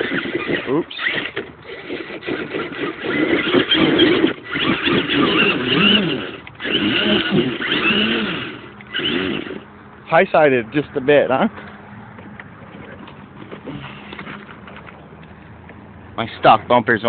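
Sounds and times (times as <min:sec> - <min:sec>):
electric motor whining: 0:00.0 - 0:09.7
drivetrain noise: 0:00.0 - 0:16.6.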